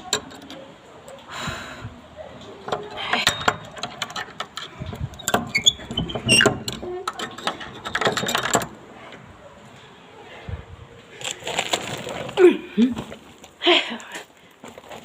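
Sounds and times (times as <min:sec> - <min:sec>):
objects being handled: 0:02.4 - 0:09.3
short high squeaks: 0:05.5 - 0:06.7.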